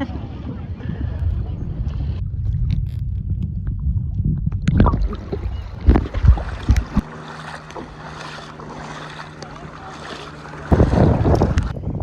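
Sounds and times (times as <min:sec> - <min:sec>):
low steady hum: 0:00.0 - 0:12.0
wind buffeting microphone: 0:00.0 - 0:12.0
splashy thumps wading in water: 0:04.6 - 0:11.7.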